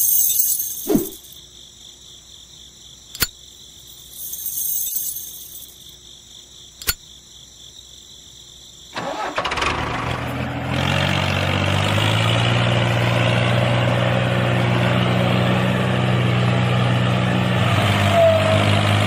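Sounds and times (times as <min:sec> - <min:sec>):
crickets chirping: 0:00.0 - 0:09.4
sharp clicks: 0:03.2 - 0:03.4, 0:06.8 - 0:07.0.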